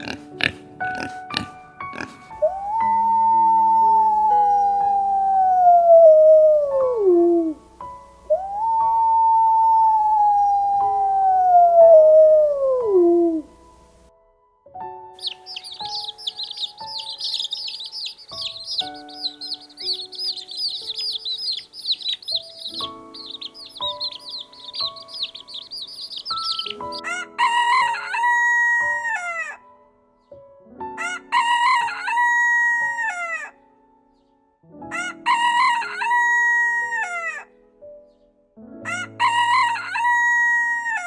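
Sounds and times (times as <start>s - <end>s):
songbirds chirping and trilling: 0.0s - 14.1s, 15.2s - 29.6s
soft background music: 0.0s - 41.0s
rooster crowing: 2.4s - 7.6s, 15.2s - 29.6s, 39.2s - 41.0s.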